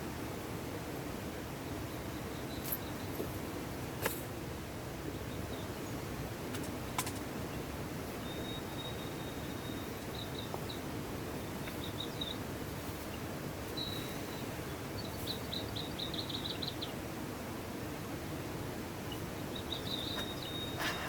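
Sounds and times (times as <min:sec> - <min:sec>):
high-pitched bird chirps: 0:19.5 - 0:20.8.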